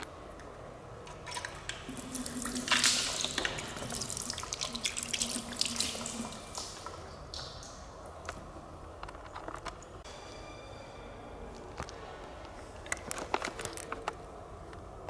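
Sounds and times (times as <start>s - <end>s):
water running and splashing: 1.3s - 8.1s
drip-like clicks: 1.3s - 8.4s.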